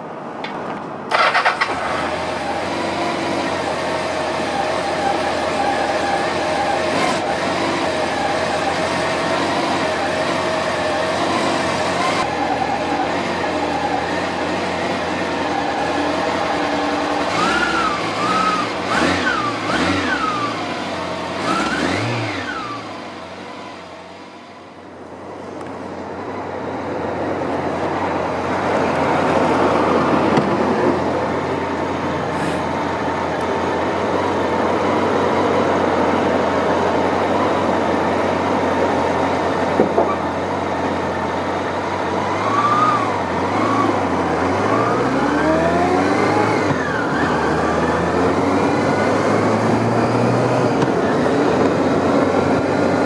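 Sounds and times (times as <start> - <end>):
motorcycle engine idling and revving: 0.0 - 53.0
wind and road noise: 0.0 - 53.0.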